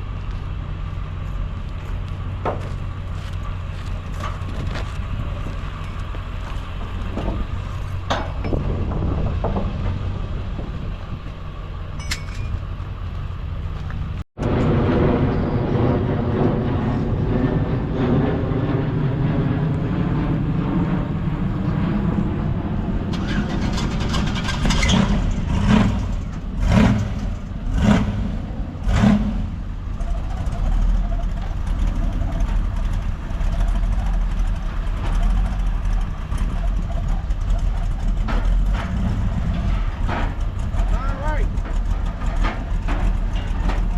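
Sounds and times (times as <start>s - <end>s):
car engine idling: 19.0s - 43.9s.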